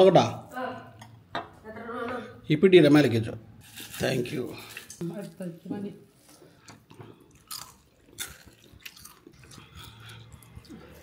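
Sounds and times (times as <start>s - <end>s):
person chewing rice: 6.6s - 11.0s.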